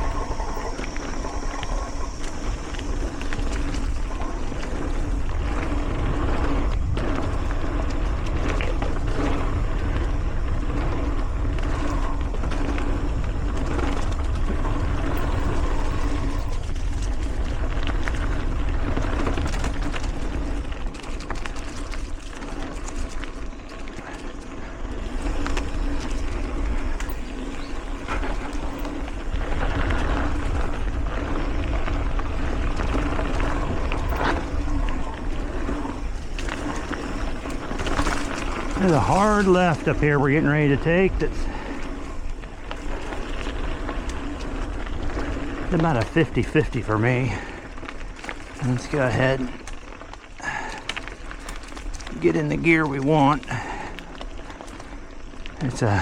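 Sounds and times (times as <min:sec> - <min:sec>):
wind rushing over microphone: 0:00.0 - 0:23.2
bike rattling and knocking: 0:00.0 - 0:56.0
bike tyres rolling over dirt: 0:00.0 - 0:56.0.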